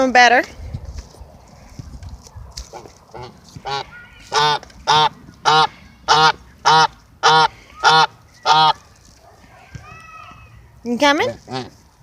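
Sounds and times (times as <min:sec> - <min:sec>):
goose honking: 0:02.7 - 0:08.8, 0:11.2 - 0:11.8.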